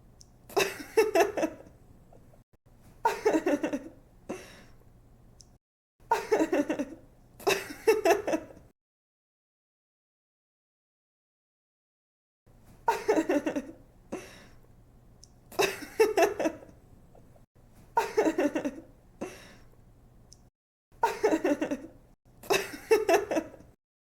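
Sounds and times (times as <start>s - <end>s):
woman giggling: 0.5s - 1.7s, 3.0s - 4.0s, 6.1s - 8.6s, 12.9s - 13.8s, 15.6s - 16.7s, 18.0s - 18.8s, 21.0s - 23.7s.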